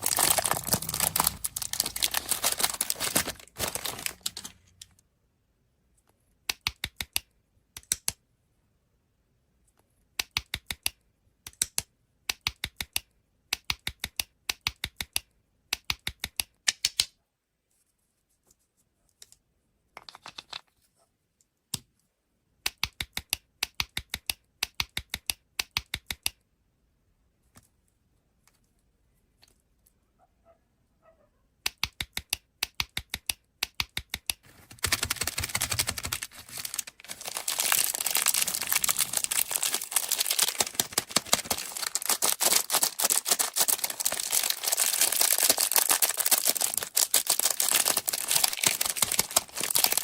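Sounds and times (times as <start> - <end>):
rapid sharp clicks: 31.6 - 50.0.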